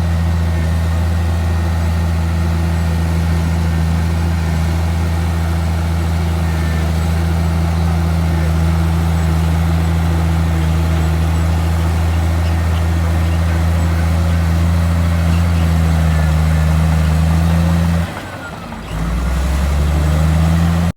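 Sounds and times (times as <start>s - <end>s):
heavy diesel engine humming: 0.0s - 20.9s.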